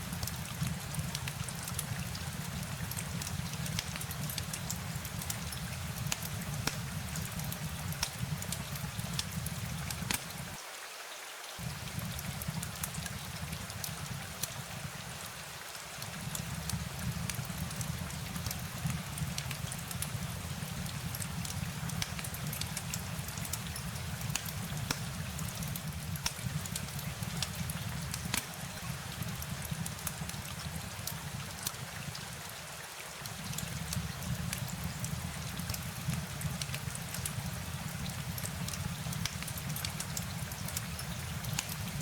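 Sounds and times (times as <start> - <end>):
rain drops ticking: 0.0 - 10.6, 11.5 - 42.0
rain hiss: 0.0 - 42.0.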